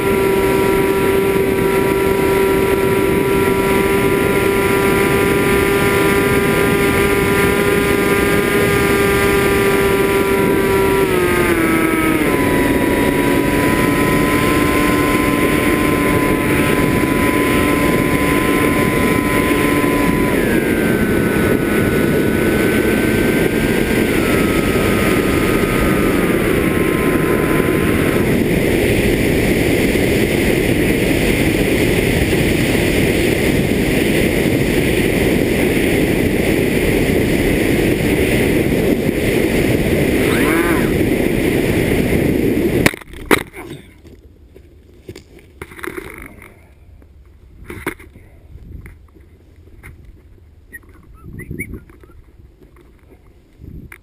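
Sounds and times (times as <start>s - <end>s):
drone motors whining: 0.0s - 42.5s
rushing air: 8.2s - 42.9s.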